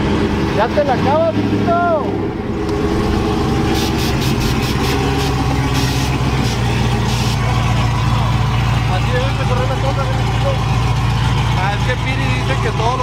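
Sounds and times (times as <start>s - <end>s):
vehicle engine idling: 0.0s - 13.0s
short hissing bursts: 3.7s - 7.4s.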